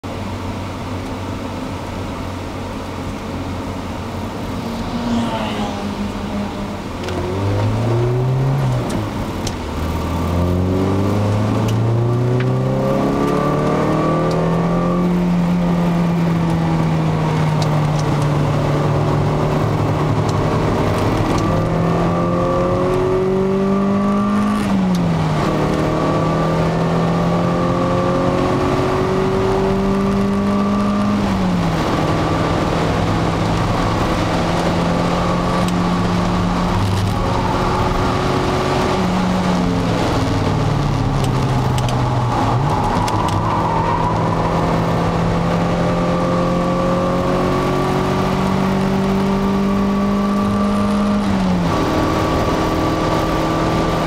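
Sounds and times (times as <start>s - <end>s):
car engine accelerating: 0.3s - 54.0s.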